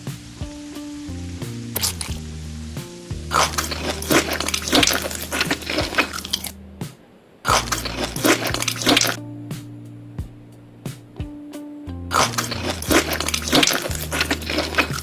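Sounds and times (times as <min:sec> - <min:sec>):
soft background music: 0:00.0 - 0:15.0
crunchy chewing: 0:01.8 - 0:02.2, 0:03.3 - 0:06.5, 0:07.5 - 0:09.2, 0:12.1 - 0:15.0.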